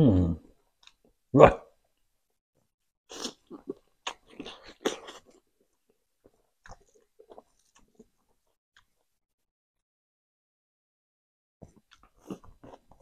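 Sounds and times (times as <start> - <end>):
person chewing food: 3.1 - 9.1, 11.6 - 13.0.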